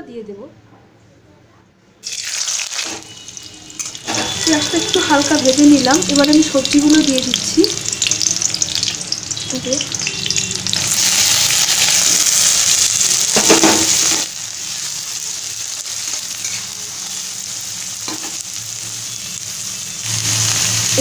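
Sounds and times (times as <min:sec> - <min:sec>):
vegetables sizzling in oil: 0:02.0 - 0:21.0
metal spatula stirring: 0:16.0 - 0:17.2.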